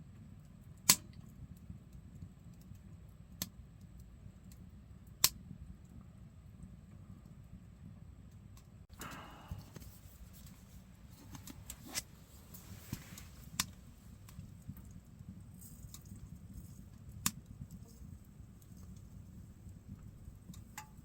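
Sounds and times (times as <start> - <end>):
low steady fire rumble: 0.0 - 21.0
firewood pops and crackles: 9.0 - 21.0.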